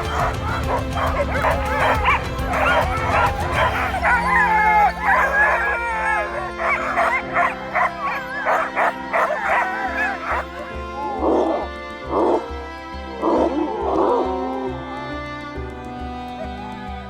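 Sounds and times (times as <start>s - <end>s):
dogs barking: 0.0s - 10.7s
sled dogs yelping and howling: 0.0s - 12.4s.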